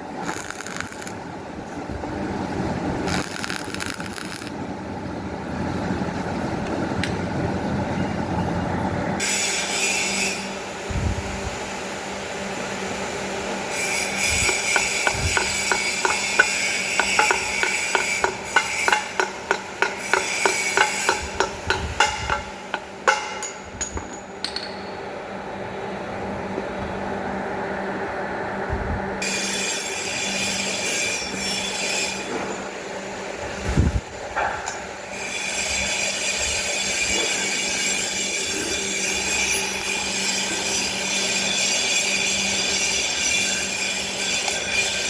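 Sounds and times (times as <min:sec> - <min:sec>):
hand tool scraping metal: 0:13.7 - 0:24.2.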